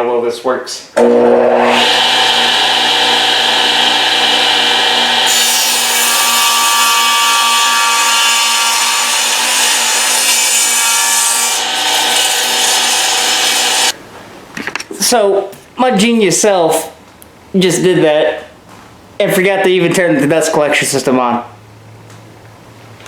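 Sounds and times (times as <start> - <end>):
table saw cutting wood: 1.0 - 14.0.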